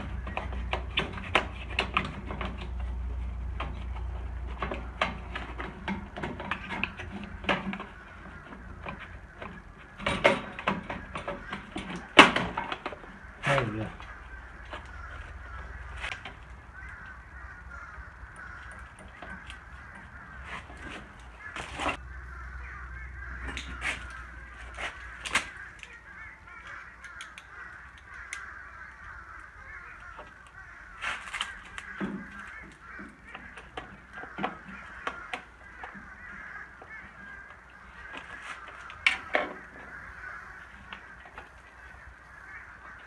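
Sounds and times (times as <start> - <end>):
sharp clicks and knocks: 0.0 - 13.3, 17.8 - 22.0
distant geese honking: 0.0 - 43.0.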